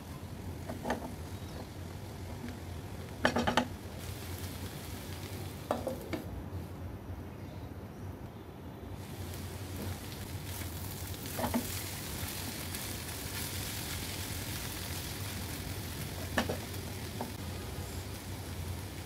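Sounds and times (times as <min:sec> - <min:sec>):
food sizzling in oil: 0:00.0 - 0:06.2, 0:09.0 - 0:19.0
steady low hum: 0:00.0 - 0:19.0.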